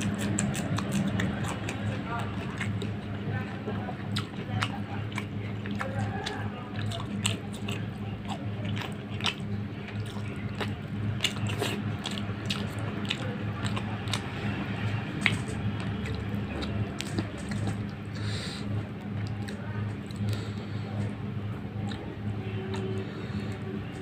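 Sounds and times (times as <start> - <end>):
wet mouth clicks: 0.0 - 3.1, 15.2 - 18.3
close chewing and biting: 0.0 - 24.0
steady low hum: 0.0 - 24.0.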